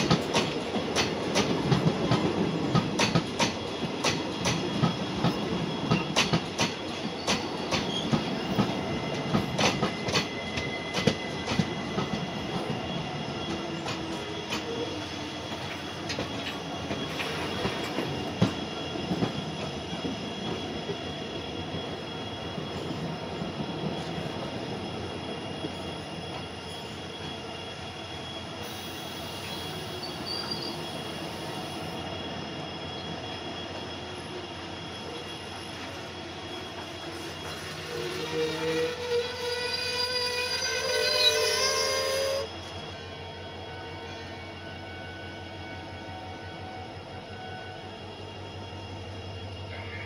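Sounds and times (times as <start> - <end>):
train wheels rumbling on rail: 0.0 - 50.0.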